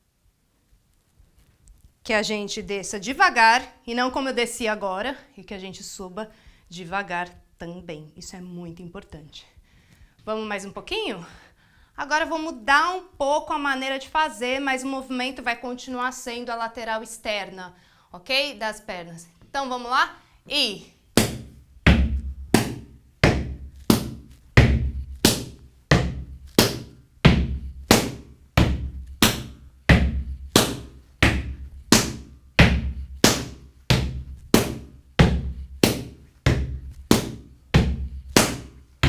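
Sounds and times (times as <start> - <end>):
hands slapping legs: 21.2 - 39.0.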